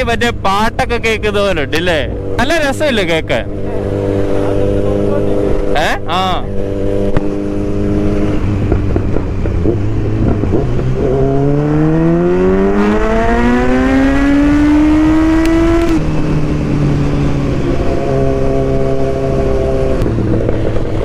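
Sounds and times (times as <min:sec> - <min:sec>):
motorcycle engine revving: 0:00.2 - 0:21.0
wind noise on microphone: 0:06.5 - 0:21.0.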